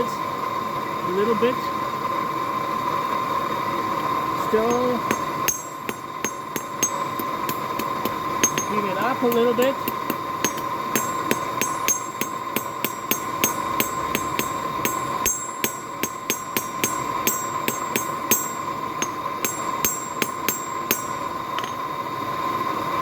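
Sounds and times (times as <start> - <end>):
hammer ringing on metal: 4.6 - 21.9.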